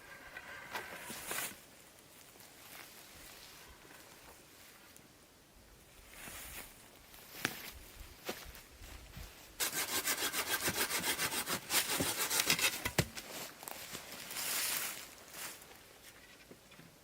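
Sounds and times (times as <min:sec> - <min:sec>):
hand saw cutting wood: 0:09.6 - 0:13.1.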